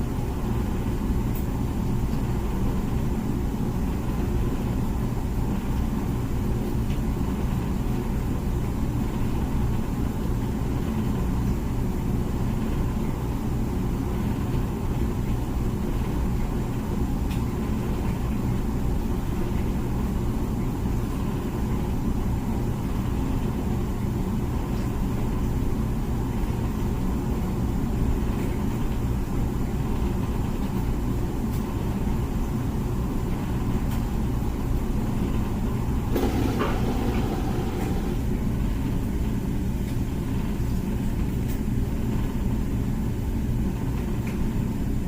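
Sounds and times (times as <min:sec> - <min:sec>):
dishwasher pump motor rumble: 0:00.0 - 0:45.0
water spraying inside dishwasher: 0:35.1 - 0:38.6.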